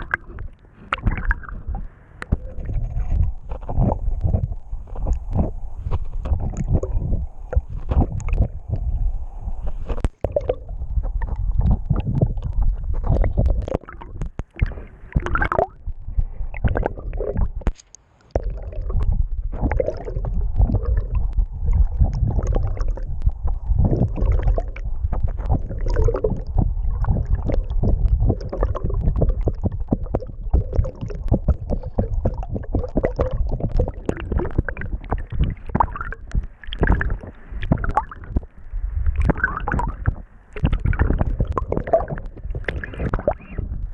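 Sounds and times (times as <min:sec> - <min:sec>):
water sloshing and gurgling: 0:00.0 - 0:43.9
low thumps and knocks: 0:09.7 - 0:43.9.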